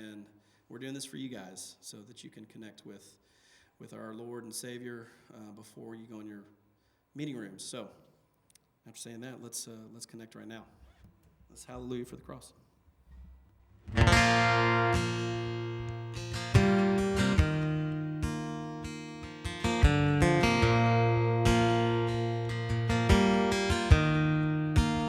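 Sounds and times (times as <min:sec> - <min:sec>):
acoustic guitar strumming: 0:13.8 - 0:25.0.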